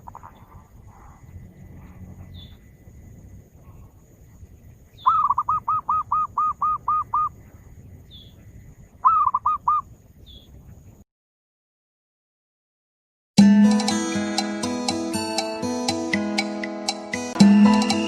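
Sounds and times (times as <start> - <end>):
dove cooing: 0.0 - 2.6, 5.0 - 7.4, 9.0 - 9.8
faint high chirp: 0.0 - 2.8, 3.7 - 10.6.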